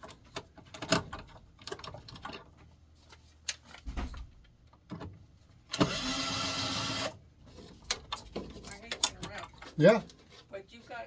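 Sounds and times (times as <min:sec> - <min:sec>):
knocks and clicks of parts handled: 0:00.0 - 0:05.2
power drill motor: 0:05.7 - 0:07.2.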